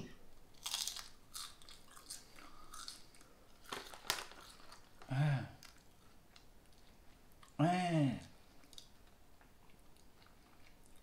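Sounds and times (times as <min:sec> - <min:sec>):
crunching crispy seaweed snack: 0:00.6 - 0:05.8.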